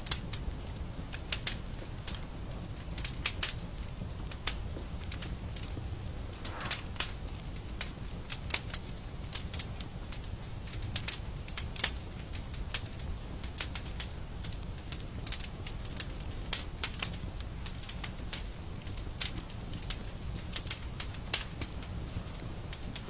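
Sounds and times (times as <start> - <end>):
wood fire crackling and popping: 0.0 - 23.0.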